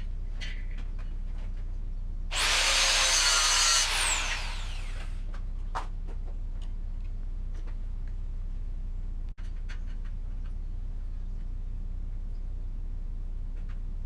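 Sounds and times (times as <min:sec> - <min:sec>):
power tool spinning down: 0:02.3 - 0:05.2.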